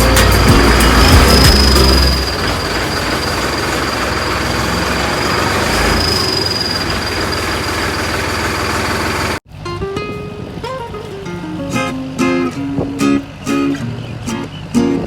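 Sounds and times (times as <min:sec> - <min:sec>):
thin high whine: 0:00.0 - 0:09.4
tractor diesel engine running: 0:00.0 - 0:09.6.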